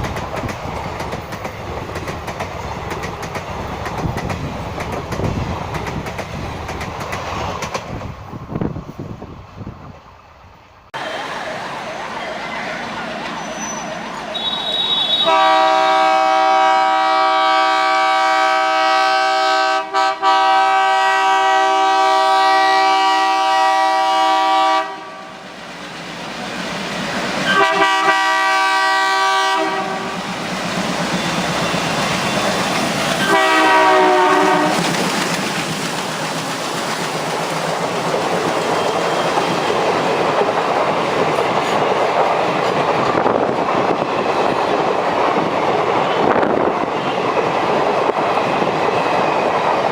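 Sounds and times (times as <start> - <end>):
train clickety-clack: 0.0 - 10.0, 12.5 - 49.9
locomotive air horn: 13.4 - 25.4, 27.4 - 30.2, 33.1 - 34.9.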